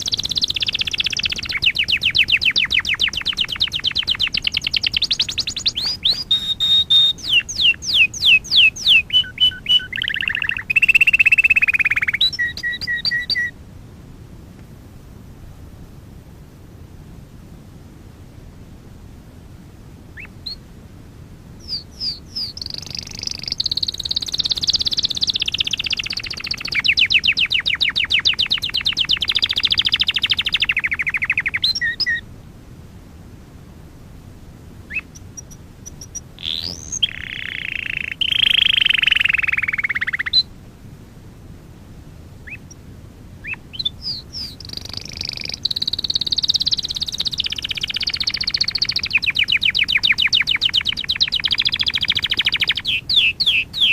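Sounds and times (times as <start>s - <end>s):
canary singing: 0.0s - 13.6s, 20.2s - 20.6s, 21.6s - 32.2s, 34.8s - 40.5s, 42.4s - 42.8s, 43.4s - 53.9s.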